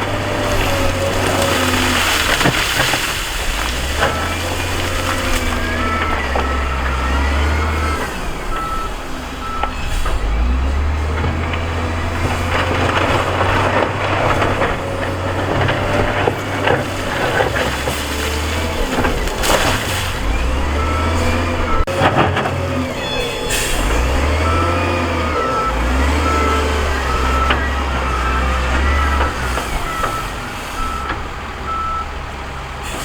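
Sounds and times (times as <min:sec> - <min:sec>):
heavy machine diesel engines: 0:00.0 - 0:33.0
reversing alarm beeping: 0:04.0 - 0:10.7, 0:20.3 - 0:21.9, 0:22.8 - 0:32.1.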